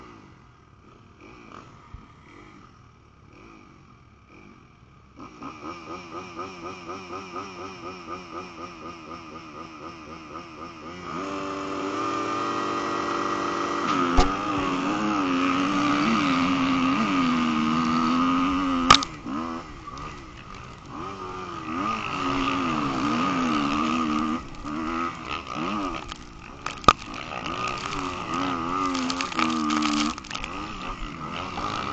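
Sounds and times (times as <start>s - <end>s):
motorcycle engine revving: 0.0s - 31.9s
sharp knock: 13.9s - 14.7s.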